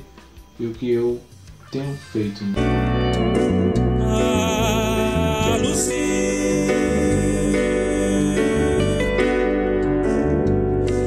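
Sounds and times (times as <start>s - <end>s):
music with held chords: 2.6s - 11.0s.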